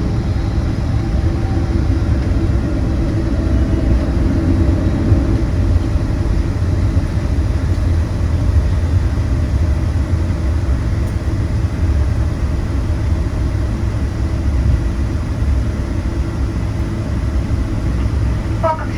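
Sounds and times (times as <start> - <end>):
low rumble of jet engines: 0.0 - 18.9
faint steady tones: 17.8 - 18.9.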